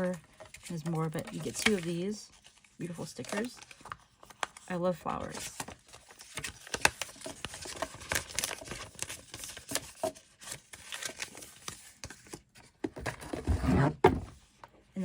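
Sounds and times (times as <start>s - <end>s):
packaging crinkling: 0.4s - 12.0s.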